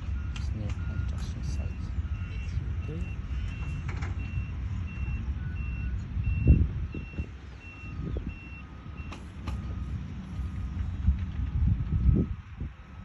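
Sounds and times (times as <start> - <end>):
vehicle reversing alarm beeping: 0.0 - 11.1
low rumble: 9.4 - 13.0.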